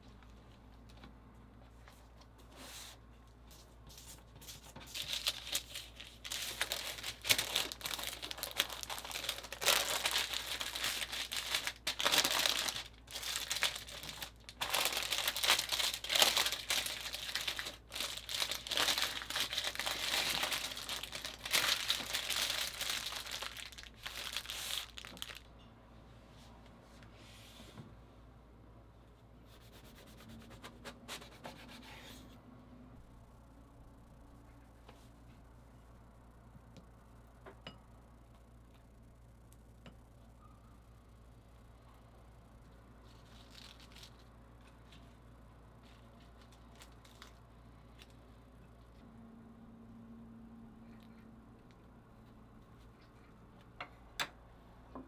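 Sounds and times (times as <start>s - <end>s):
wrapping sheet crinkling: 4.5s - 25.5s, 43.0s - 45.0s, 45.8s - 48.2s.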